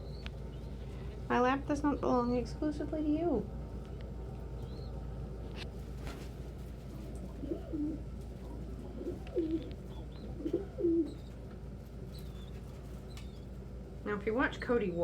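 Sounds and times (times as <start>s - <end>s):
low room hum: 0.0s - 15.0s
pigeons cooing: 6.9s - 13.6s.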